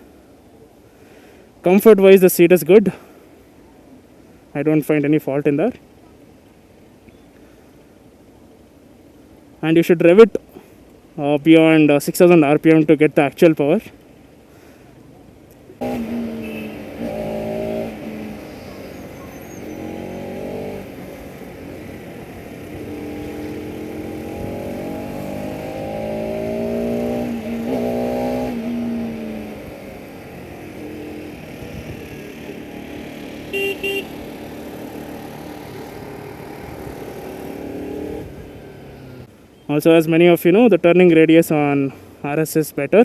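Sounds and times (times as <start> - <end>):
horn toots: 15.8 - 20.8, 33.4 - 34.4
motorcycle engine revving: 15.8 - 39.3.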